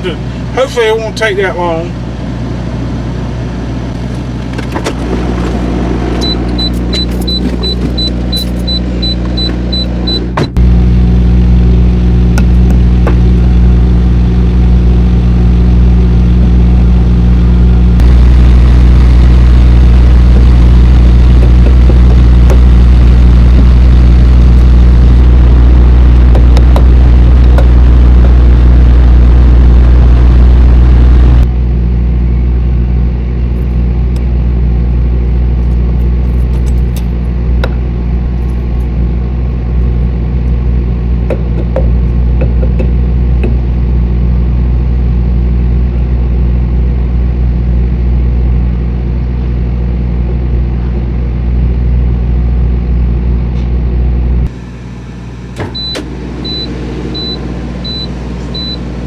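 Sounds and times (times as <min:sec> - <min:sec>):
diesel truck engine humming: 0:00.0 - 0:59.0
short high beeps: 0:06.2 - 0:10.4, 0:55.8 - 0:58.8.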